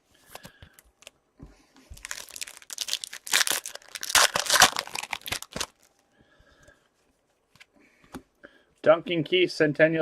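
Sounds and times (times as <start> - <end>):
foil wrapper crinkling: 1.9 - 5.9
wrapper tearing: 1.9 - 5.9.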